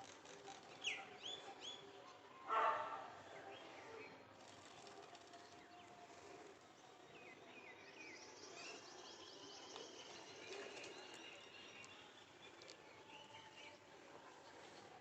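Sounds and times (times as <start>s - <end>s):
small birds chirping: 4.5s - 14.0s.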